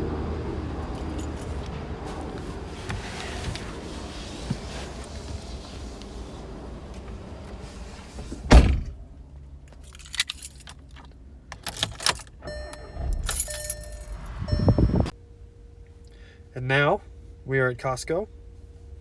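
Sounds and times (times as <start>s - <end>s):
keys jangling: 0.8s - 1.8s, 9.7s - 12.4s, 13.0s - 14.5s
heavy thud: 8.3s - 9.0s
electronic tone: 12.5s - 15.1s.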